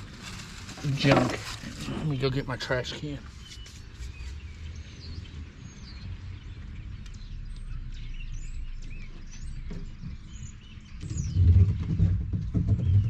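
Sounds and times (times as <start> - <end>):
small birds chirping: 0.0 - 13.0
loud low rumbling with knocks: 5.1 - 13.0.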